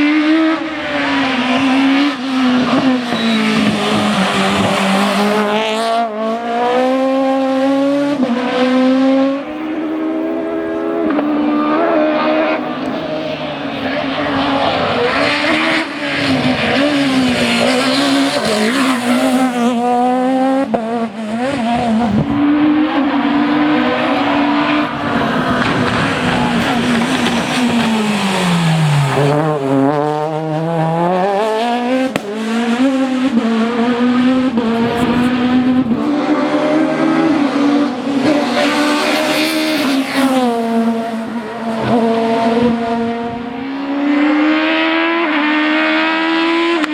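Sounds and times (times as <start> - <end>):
rally car engine revving high: 0.0 - 46.9.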